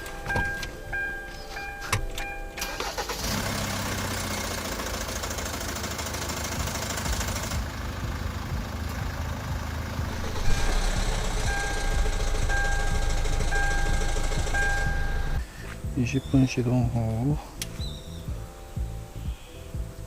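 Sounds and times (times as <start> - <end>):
dashboard chime beeps: 0.0 - 2.6, 10.3 - 15.4
diesel engine starting and idling: 0.0 - 15.5.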